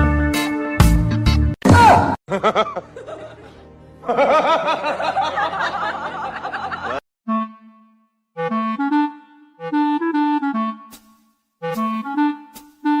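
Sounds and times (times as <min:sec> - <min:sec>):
giggling laughter: 0:02.3 - 0:07.0.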